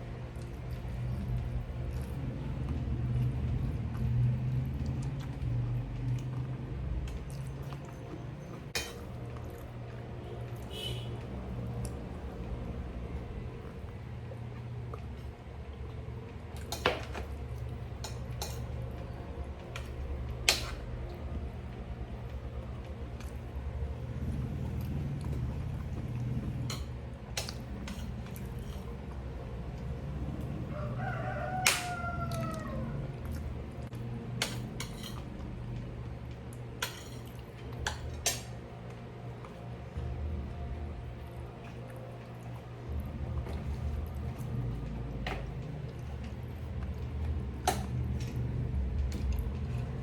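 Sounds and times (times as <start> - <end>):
steady low hum: 0.0 - 50.0
cutlery clinking on a plate: 8.7 - 9.1, 18.0 - 18.7, 34.4 - 35.2, 36.8 - 38.5
rooster crowing: 30.4 - 33.6.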